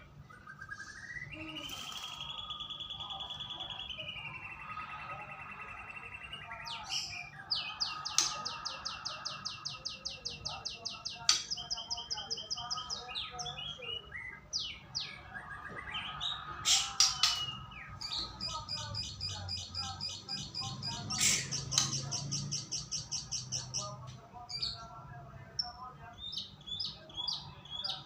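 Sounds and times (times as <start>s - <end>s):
loud whistled bird phrases: 0.3s - 22.2s
bird singing rapid high notes: 0.4s - 23.8s.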